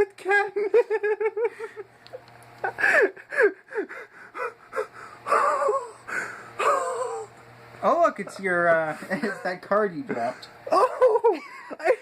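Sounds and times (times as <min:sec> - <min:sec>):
person laughing hard: 0:00.6 - 0:01.9, 0:02.6 - 0:06.0, 0:09.0 - 0:12.0
wavering wheeze: 0:02.8 - 0:07.4.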